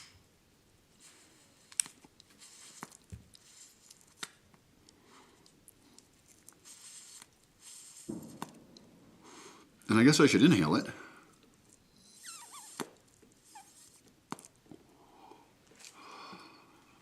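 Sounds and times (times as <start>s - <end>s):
soft hisses: 0.9s - 4.4s, 5.0s - 14.2s.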